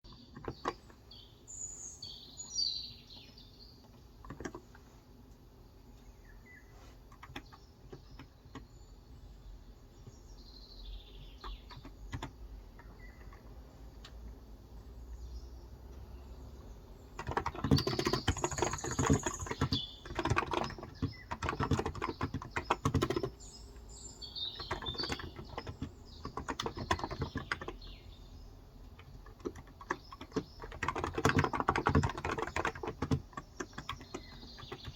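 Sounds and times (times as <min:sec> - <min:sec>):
keyboard typing: 0:00.1 - 0:01.0, 0:03.8 - 0:04.8, 0:07.1 - 0:08.7, 0:11.1 - 0:14.2, 0:17.1 - 0:23.9, 0:24.5 - 0:27.9, 0:28.8 - 0:34.9
birds chirping: 0:00.1 - 0:04.8, 0:05.7 - 0:34.9.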